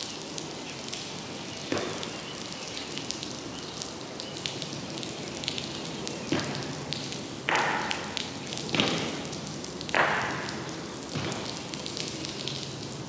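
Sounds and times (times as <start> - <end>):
rain falling: 0.0 - 13.0
drops ticking on hard surfaces: 5.5 - 12.7.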